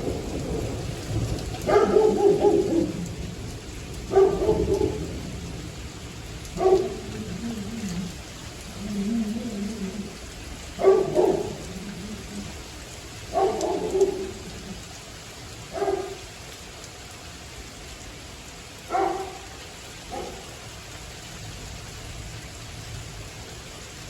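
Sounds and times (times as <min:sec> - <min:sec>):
rain hissing: 0:00.0 - 0:24.0
distant dog barking: 0:01.6 - 0:03.2, 0:04.0 - 0:05.3, 0:06.5 - 0:08.2, 0:08.8 - 0:12.5, 0:13.2 - 0:14.8, 0:15.7 - 0:16.3, 0:18.9 - 0:20.6.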